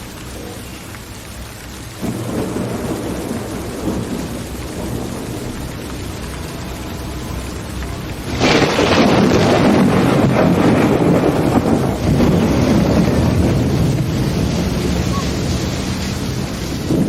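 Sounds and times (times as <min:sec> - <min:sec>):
steady rain: 0:00.0 - 0:17.0
rolling thunder: 0:01.9 - 0:17.0.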